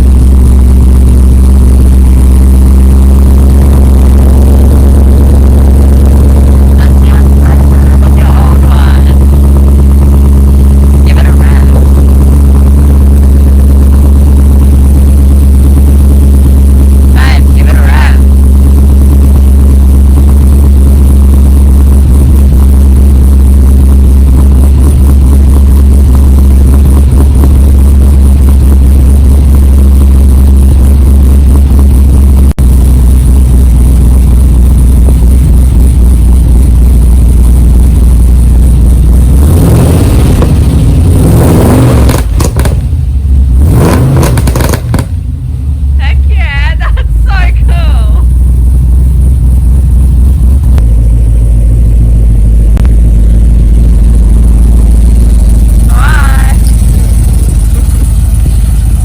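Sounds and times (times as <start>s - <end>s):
engine revving: 0.0s - 32.1s, 34.3s - 48.3s
engine idling with deep note: 0.0s - 59.0s.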